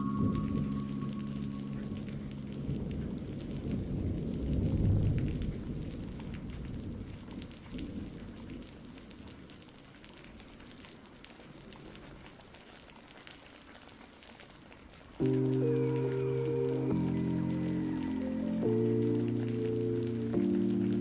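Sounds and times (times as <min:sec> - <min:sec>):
thunder rumble: 0:00.0 - 0:09.6, 0:15.2 - 0:21.0
rain pattering: 0:00.0 - 0:21.0.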